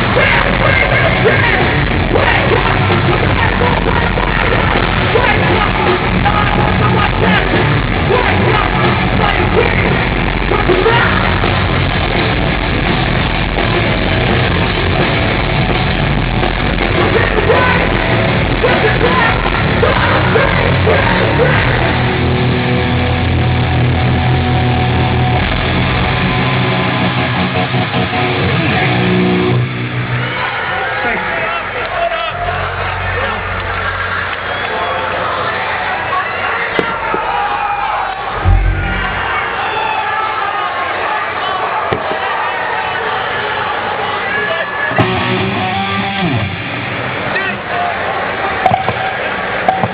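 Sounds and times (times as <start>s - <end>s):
rock vocals: 0.0s - 26.3s
heavy rock band playing: 0.0s - 30.3s, 38.3s - 40.2s, 44.9s - 47.2s.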